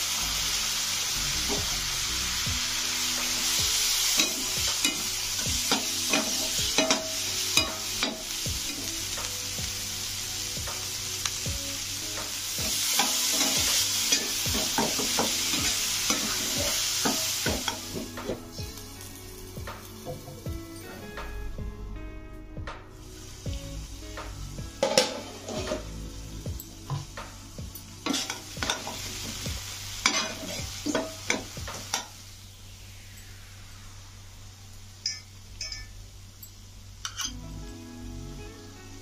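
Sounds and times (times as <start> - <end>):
food sizzling in a pan: 0.0 - 21.6, 22.9 - 39.0
spatula scraping a pan: 24.8 - 25.9.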